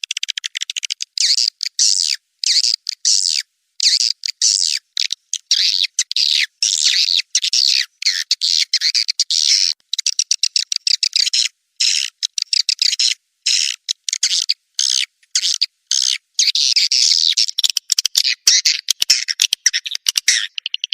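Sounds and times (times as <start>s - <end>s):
sharp clicks: 0.0s - 1.6s, 17.6s - 20.9s.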